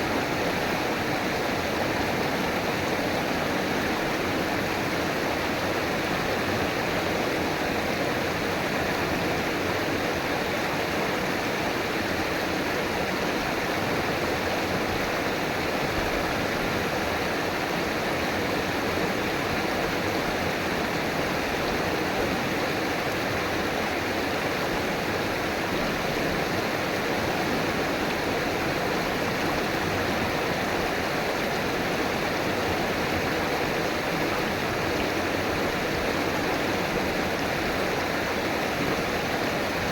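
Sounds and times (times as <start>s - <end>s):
river water running over rocks: 0.0s - 39.9s.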